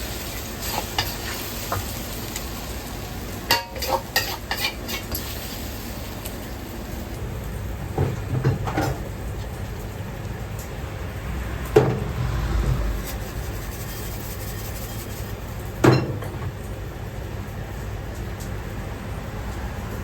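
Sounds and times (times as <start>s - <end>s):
kitchen background noise: 0.0s - 20.0s
cookware knocking and clattering: 15.8s - 16.6s.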